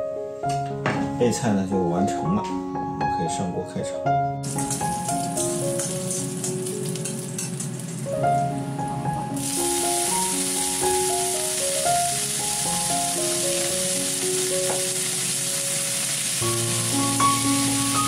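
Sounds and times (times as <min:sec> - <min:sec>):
background music: 0:00.0 - 0:18.0
oil sizzling in wok: 0:04.4 - 0:18.0.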